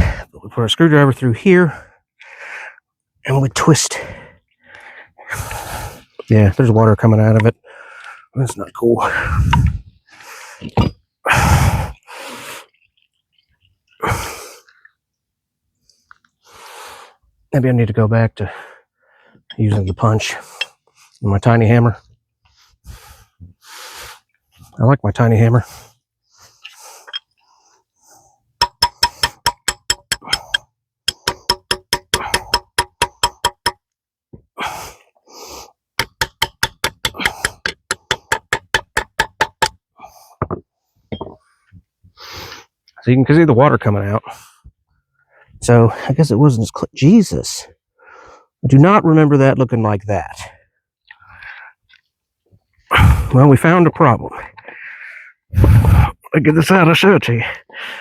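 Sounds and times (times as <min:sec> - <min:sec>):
hammer tapping a steel punch: 0:28.6 - 0:33.8, 0:36.0 - 0:39.8
person huffing breath: 0:55.5 - 0:56.2.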